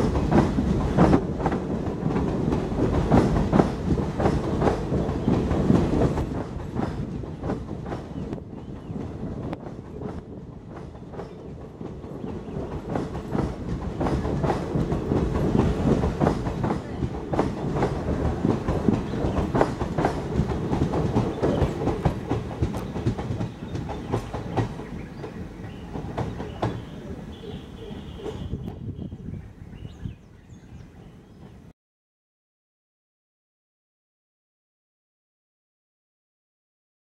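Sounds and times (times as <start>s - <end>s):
wheels clicking over rail joints: 0.0s - 28.7s
train rumbling past: 0.0s - 31.7s.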